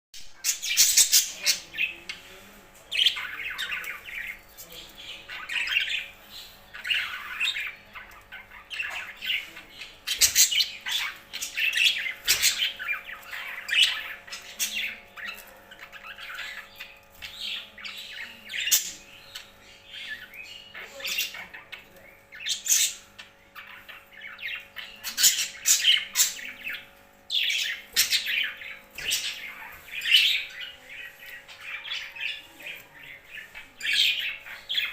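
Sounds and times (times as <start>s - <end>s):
birds squawking and chirping: 0.2s - 34.9s.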